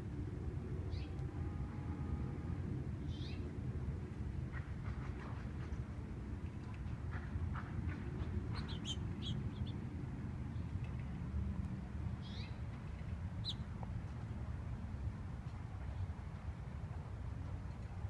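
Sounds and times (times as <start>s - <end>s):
finches chirping: 8.5s - 9.8s.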